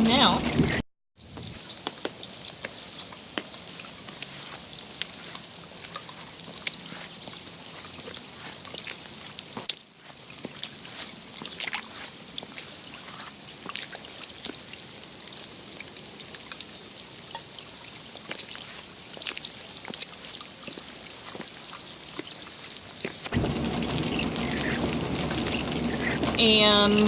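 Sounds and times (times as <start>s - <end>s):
steady rain falling: 0.0s - 27.0s
drops ticking: 1.2s - 27.0s
water trickling: 1.2s - 27.0s
low steady noise: 23.1s - 27.0s.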